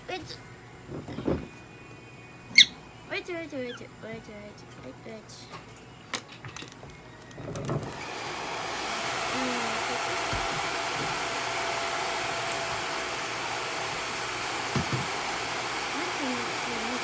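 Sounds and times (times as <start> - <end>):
hair dryer blowing with whine: 7.8 - 17.0.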